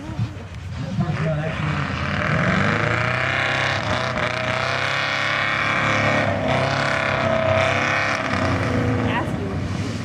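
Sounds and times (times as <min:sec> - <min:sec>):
truck engine revving high: 0:00.7 - 0:10.0.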